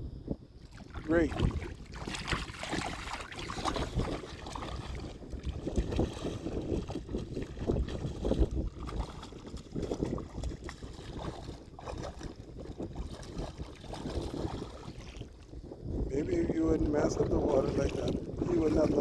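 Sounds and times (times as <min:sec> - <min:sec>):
wind buffeting microphone: 0:00.0 - 0:19.0
water sloshing and lapping: 0:00.6 - 0:19.0.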